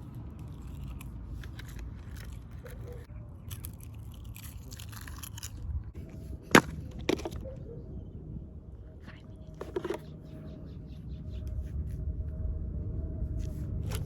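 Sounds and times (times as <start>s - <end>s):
chewing crunchy food: 0.2s - 5.7s.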